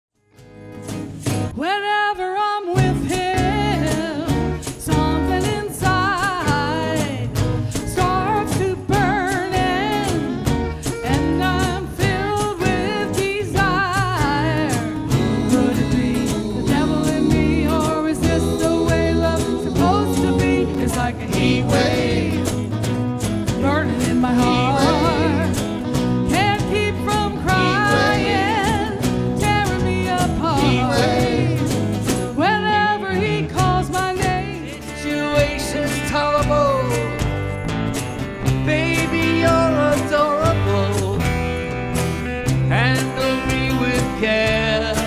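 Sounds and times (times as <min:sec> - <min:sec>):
band playing a song: 0:02.8 - 0:45.0.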